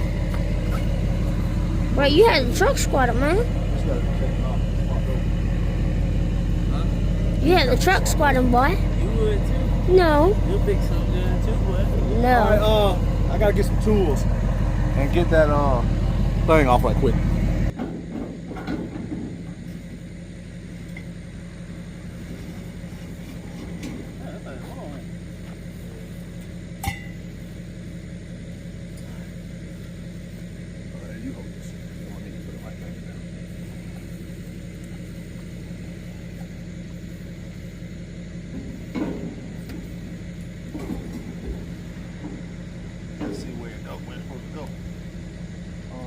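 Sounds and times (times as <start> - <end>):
pickup truck engine idling: 0.0 - 46.0
sharp metallic clank: 26.8 - 27.3.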